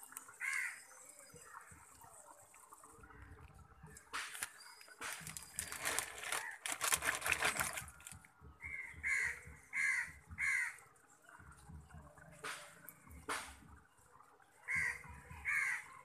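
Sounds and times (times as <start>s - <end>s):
bird cawing: 0.4s - 0.8s, 8.6s - 10.8s, 14.7s - 15.9s
rough crackly noise: 3.8s - 8.3s.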